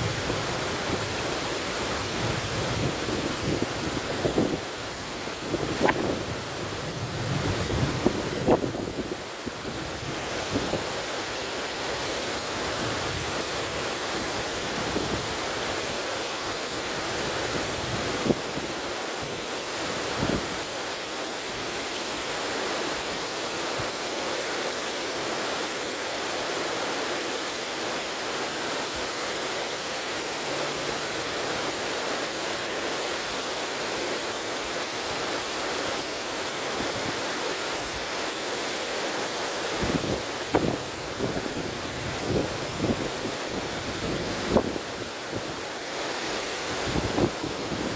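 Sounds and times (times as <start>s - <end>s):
wind buffeting microphone: 0.0s - 10.9s, 39.8s - 45.6s, 46.6s - 47.9s
river water rushing: 0.0s - 47.9s
wind: 0.0s - 47.9s.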